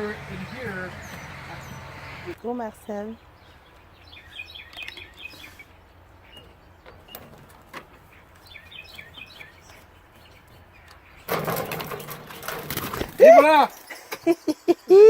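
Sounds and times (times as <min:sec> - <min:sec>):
small bird chirping: 0:00.0 - 0:07.3, 0:08.0 - 0:11.3.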